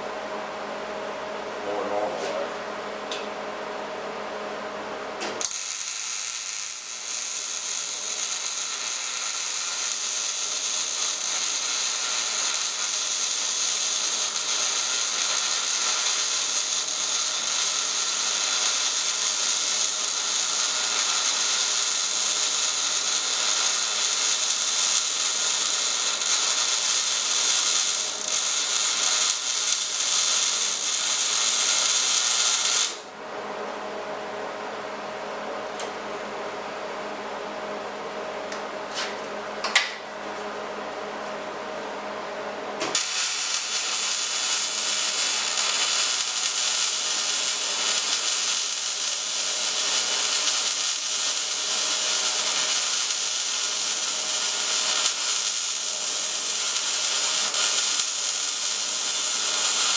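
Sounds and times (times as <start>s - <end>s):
welding arc crackling sizzle: 5.2s - 33.1s, 42.8s - 59.9s.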